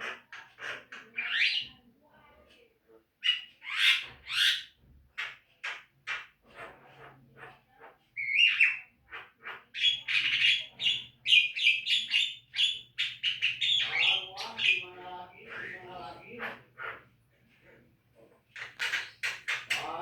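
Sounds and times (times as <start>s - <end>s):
myna calling: 6.6s - 17.1s.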